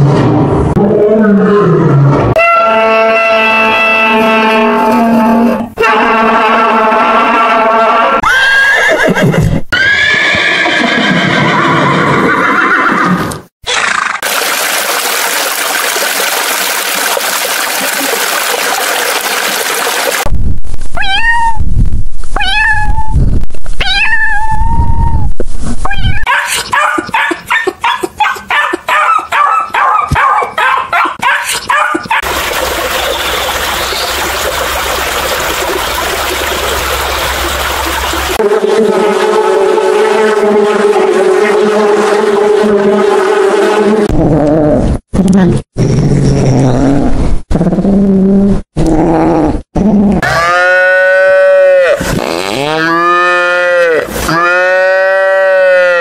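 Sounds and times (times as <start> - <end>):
cat meowing: 21.0 - 21.6, 22.4 - 23.2, 23.8 - 25.0.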